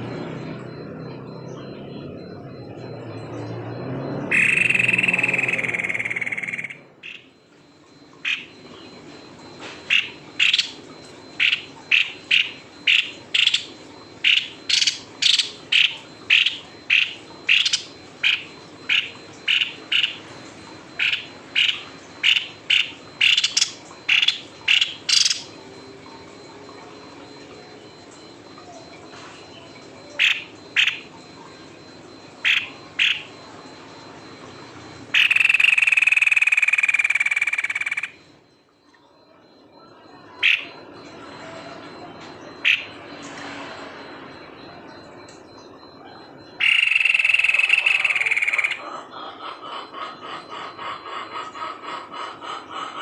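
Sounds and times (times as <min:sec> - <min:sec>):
bird calling in sharp notes: 0:01.1 - 0:07.3, 0:09.9 - 0:10.8, 0:11.4 - 0:20.2, 0:21.0 - 0:25.6, 0:44.6 - 0:48.8.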